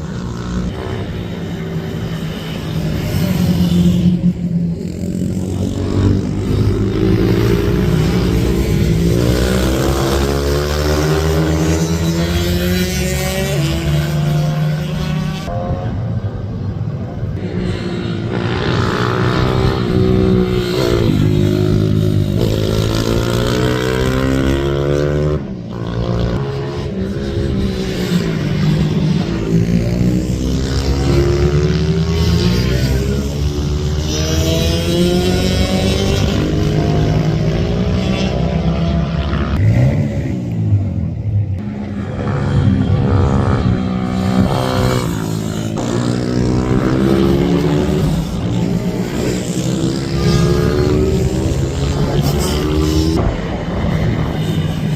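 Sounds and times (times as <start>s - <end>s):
minibike engines revving: 41.8s - 54.9s.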